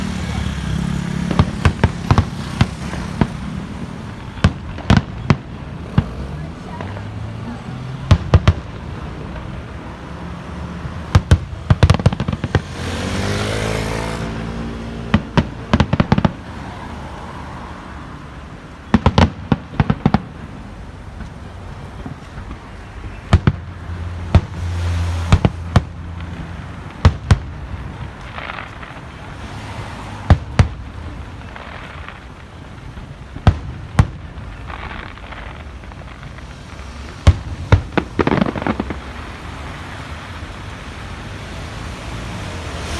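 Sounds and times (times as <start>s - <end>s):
fireworks bangs: 0.0s - 42.9s
fireworks hissing burst: 22.4s - 42.9s.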